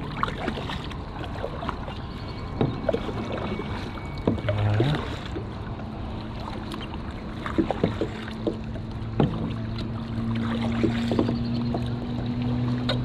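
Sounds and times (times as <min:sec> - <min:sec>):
low steady hum: 0:00.0 - 0:13.0
paddling water noise: 0:00.0 - 0:13.0
paddles knocking against boats: 0:02.5 - 0:13.0.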